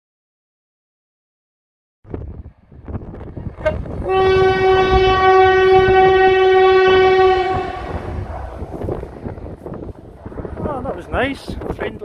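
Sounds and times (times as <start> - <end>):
rumble of passing train: 2.1 - 12.0
train horn: 3.6 - 8.2.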